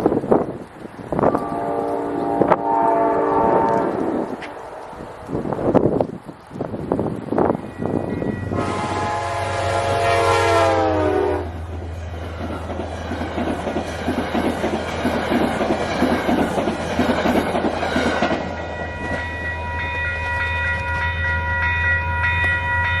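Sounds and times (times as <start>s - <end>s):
train horn: 1.2s - 4.6s, 7.7s - 11.7s
steady high ringing tones: 7.6s - 8.7s, 18.5s - 23.0s
train wheels clattering: 11.5s - 23.0s.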